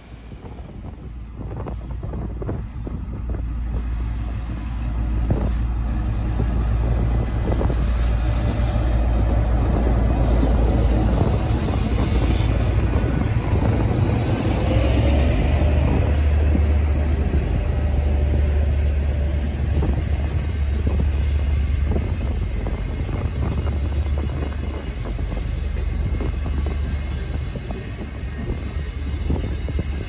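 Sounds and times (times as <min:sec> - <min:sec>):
locomotive engine rumble: 0:00.0 - 0:30.0.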